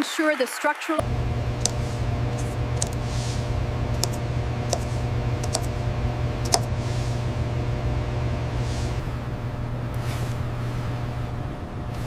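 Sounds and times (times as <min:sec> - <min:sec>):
low hum: 0:01.0 - 0:12.0
sharp clicks: 0:01.6 - 0:01.8, 0:02.4 - 0:03.0, 0:03.9 - 0:05.8, 0:06.4 - 0:06.7.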